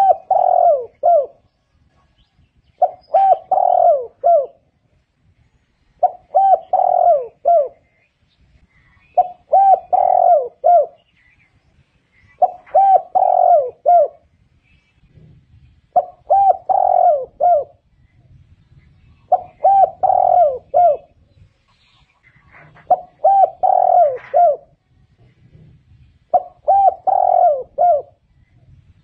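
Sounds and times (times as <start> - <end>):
dove cooing: 0.0 - 1.4, 2.8 - 4.7, 6.0 - 8.0, 9.1 - 11.0, 12.3 - 14.3, 15.1 - 17.8, 19.2 - 21.2, 22.2 - 24.8, 25.4 - 28.3.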